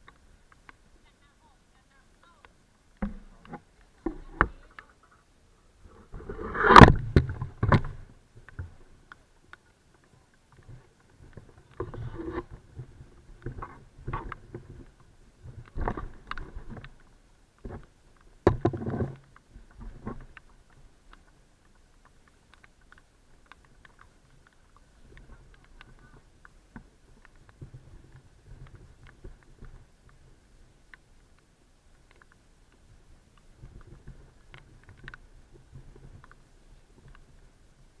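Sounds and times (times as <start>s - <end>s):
water splashes and knocks: 3.0s - 4.6s, 6.1s - 8.8s, 17.6s - 22.7s.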